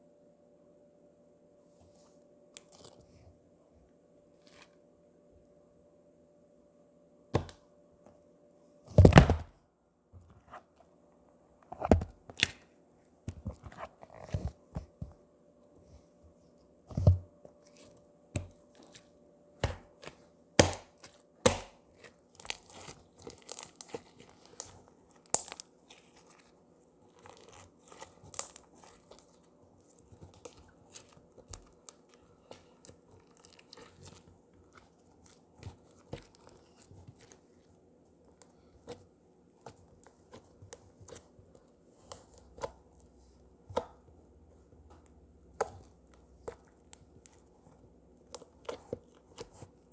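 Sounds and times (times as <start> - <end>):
slime squishing with sticky pops: 11.7 - 15.2, 16.9 - 49.9.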